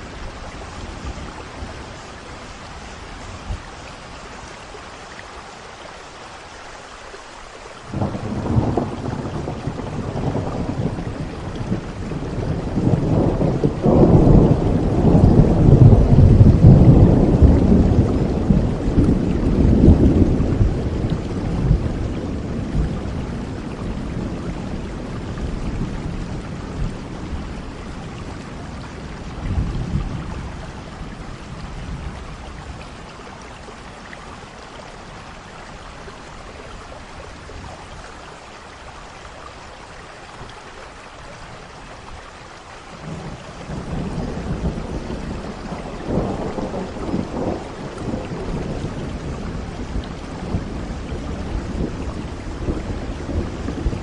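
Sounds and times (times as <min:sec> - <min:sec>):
steady rain falling: 0:00.0 - 0:54.0
distant thunder rumbling: 0:07.9 - 0:33.4, 0:42.9 - 0:54.0.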